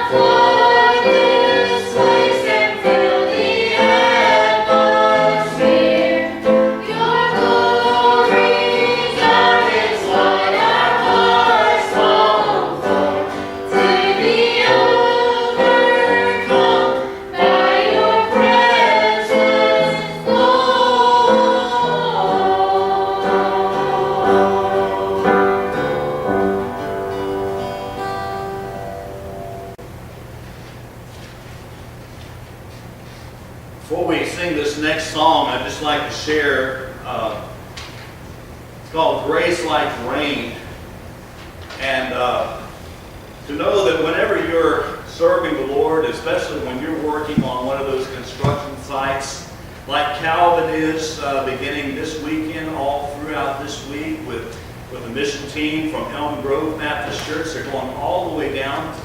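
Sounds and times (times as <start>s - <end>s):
gospel singers in harmony: 0.0s - 26.9s, 43.5s - 49.6s.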